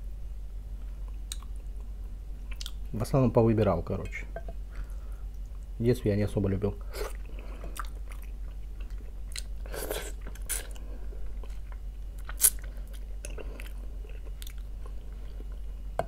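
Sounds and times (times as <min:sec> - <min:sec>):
low steady hum: 0:00.0 - 0:16.0
chewing and smacking: 0:01.0 - 0:01.9, 0:02.5 - 0:02.8, 0:07.1 - 0:15.8.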